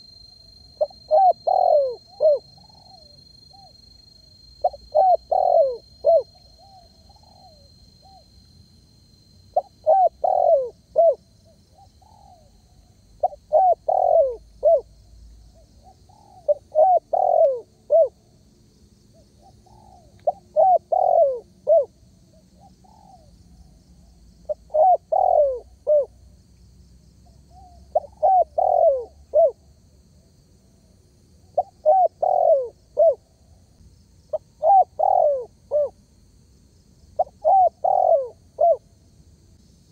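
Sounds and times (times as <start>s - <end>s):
dove cooing: 0.8s - 3.8s, 4.6s - 8.2s, 9.5s - 12.5s, 13.2s - 14.9s, 15.8s - 18.2s, 19.4s - 23.3s, 24.5s - 26.2s, 27.5s - 29.6s, 31.6s - 33.2s, 34.3s - 36.0s, 37.2s - 38.8s.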